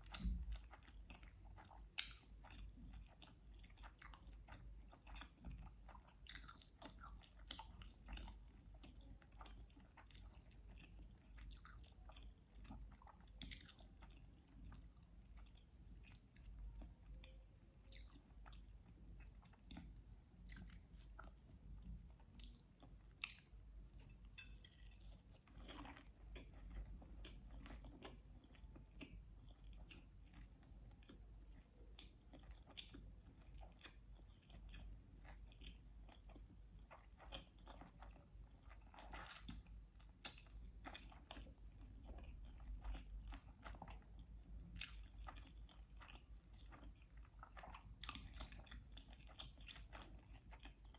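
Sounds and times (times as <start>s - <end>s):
chewing and biting: 44.6s - 50.9s.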